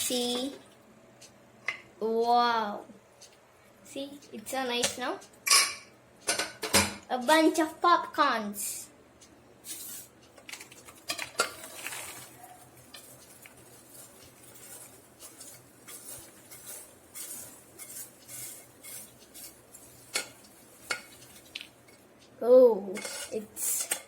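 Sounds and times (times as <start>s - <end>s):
popcorn rustling: 9.6s - 22.0s
metal utensils clinking and scraping: 9.7s - 22.0s, 22.9s - 24.0s.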